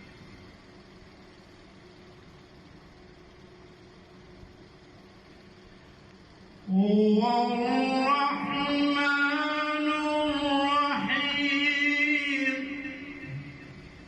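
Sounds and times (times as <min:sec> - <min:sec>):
man chanting melodically: 0:06.7 - 0:13.8.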